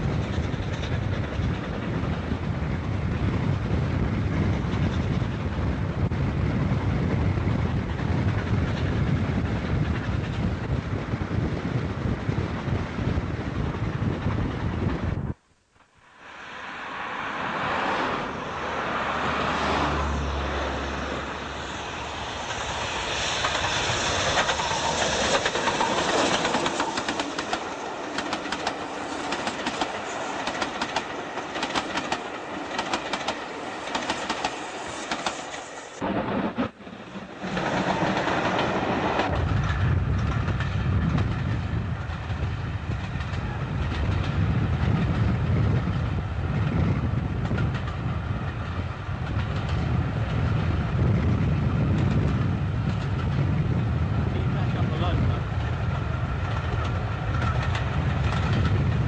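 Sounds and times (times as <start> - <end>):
train coaches clattering over rails: 23.4 - 46.0.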